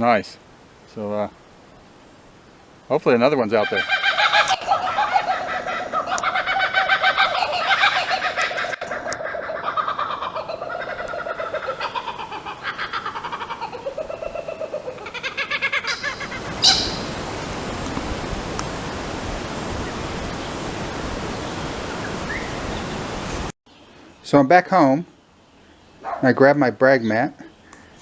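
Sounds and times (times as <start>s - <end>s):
steady hiss: 0.0s - 28.0s
bird chattering: 3.5s - 18.0s.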